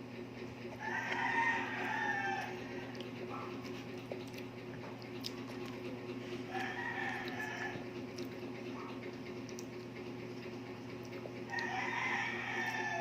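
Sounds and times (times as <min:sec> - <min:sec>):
steady low hum: 0:00.0 - 0:13.0
rooster crowing: 0:00.8 - 0:03.0, 0:06.5 - 0:07.9, 0:11.5 - 0:13.0.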